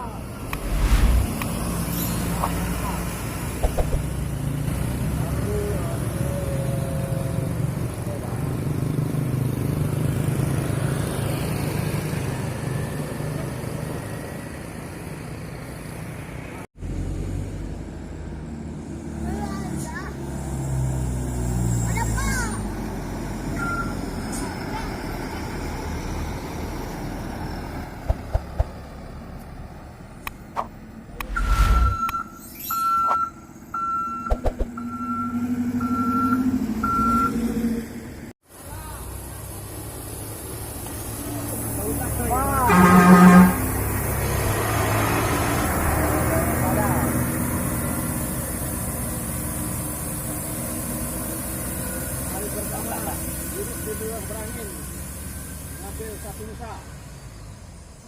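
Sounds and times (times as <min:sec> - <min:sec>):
road noise: 0:00.0 - 0:58.0
engine running: 0:00.3 - 0:08.7
vehicle reverse alarm beeping: 0:23.6 - 0:24.0, 0:31.3 - 0:37.4.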